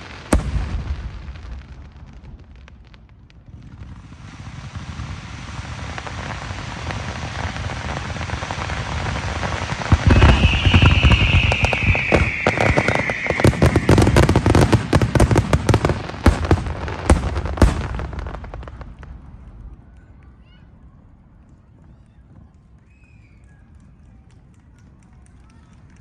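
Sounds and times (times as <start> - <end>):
fireworks crackling hiss: 0.0 - 19.8
fireworks bangs and crackles: 0.0 - 26.0
firework whistle falling in pitch: 9.9 - 14.4.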